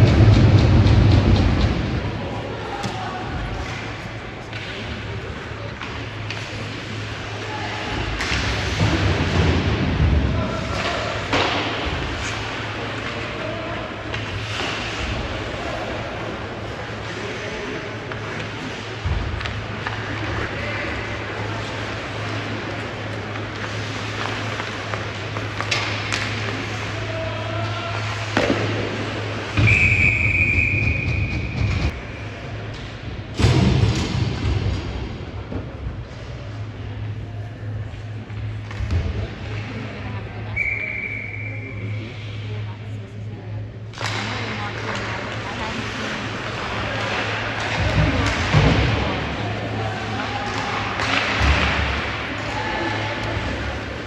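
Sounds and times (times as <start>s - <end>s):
hockey sticks and puck clacking: 0.0s - 32.0s, 43.9s - 54.0s
arena crowd hum: 0.0s - 54.0s
puck striking boards: 8.1s - 13.2s, 28.0s - 29.8s
referee's whistle blast: 29.6s - 31.5s.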